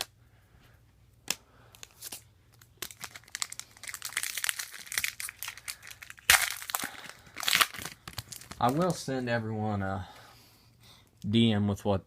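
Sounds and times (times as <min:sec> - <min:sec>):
foil wrapper crinkling: 0:01.8 - 0:09.0.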